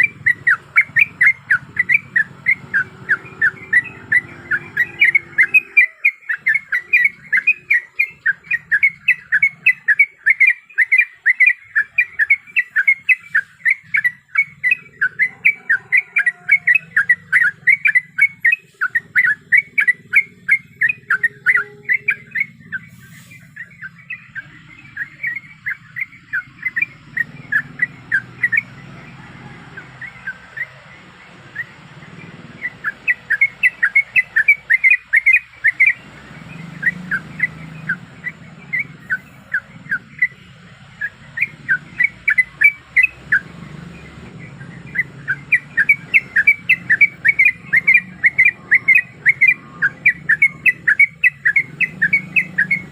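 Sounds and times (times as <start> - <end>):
bird chattering calls: 0.0 - 52.9
faint hiss: 22.9 - 23.6.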